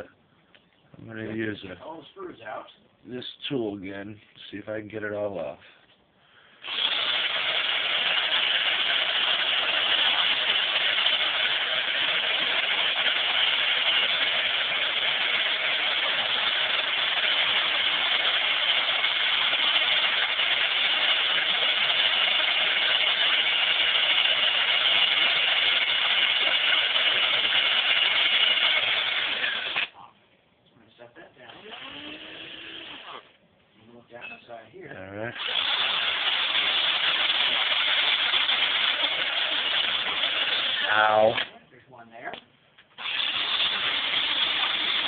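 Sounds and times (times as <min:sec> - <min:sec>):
cordless drill running: 0:06.6 - 0:29.9, 0:31.4 - 0:33.3, 0:35.4 - 0:41.5, 0:43.0 - 0:45.0.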